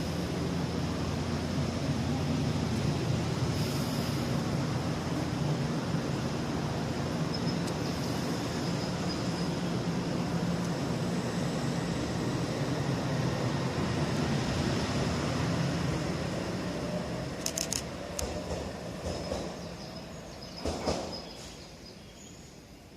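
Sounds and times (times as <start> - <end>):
electric train rumbling: 0.0 - 22.9
sharp clicks: 17.4 - 18.4.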